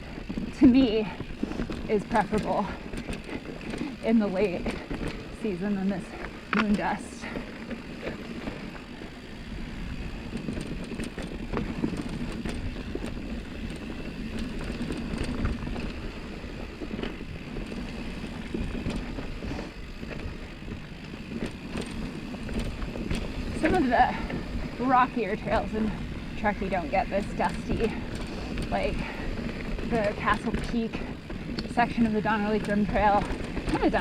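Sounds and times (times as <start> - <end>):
bike clicks and rattles: 0.0 - 34.0
bike tyres rumbling on dirt: 0.0 - 34.0.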